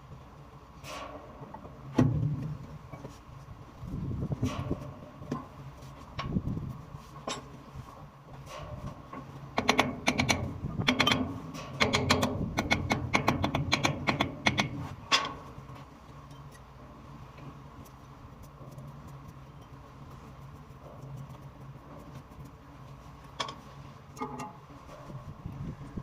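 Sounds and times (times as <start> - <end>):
steady low hum: 0.0 - 26.0
sharp clicks and knocks: 8.3 - 16.7, 17.4 - 25.2.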